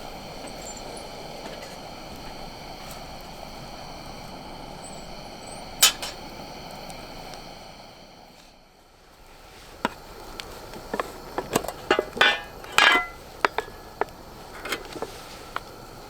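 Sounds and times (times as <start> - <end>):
metal rattling clatter: 11.4 - 15.1.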